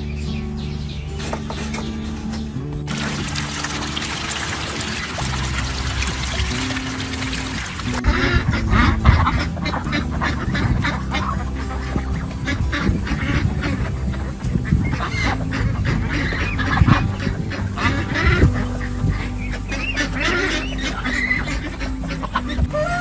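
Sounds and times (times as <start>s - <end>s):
ducks quacking: 2.9s - 23.0s.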